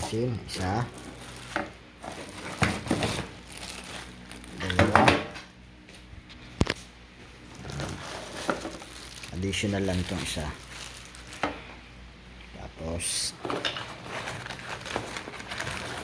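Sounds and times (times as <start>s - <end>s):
magazines clacking and knocking: 4.6s - 5.5s.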